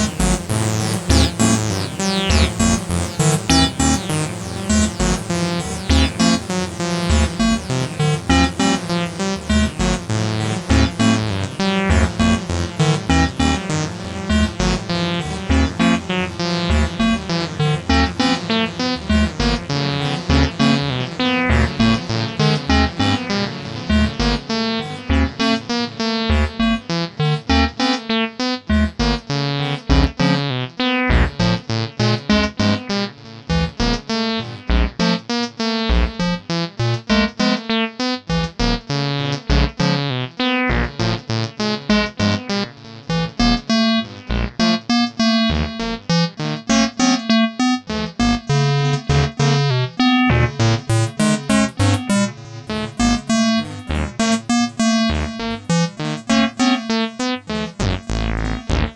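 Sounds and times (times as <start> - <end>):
synth bassline with filter sweeps: 0.0 - 37.5, 38.3 - 58.9
steady kick drum: 26.3 - 26.8, 34.7 - 35.0, 35.9 - 36.4, 39.5 - 39.8.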